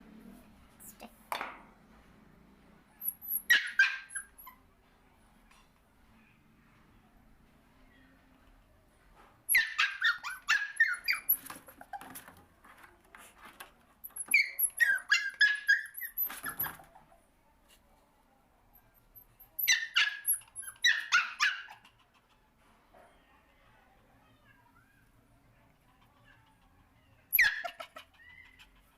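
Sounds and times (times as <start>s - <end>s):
puppy squealing and yipping: 3.0s - 4.7s, 9.5s - 12.3s, 14.0s - 17.0s, 19.2s - 22.0s, 27.2s - 28.9s.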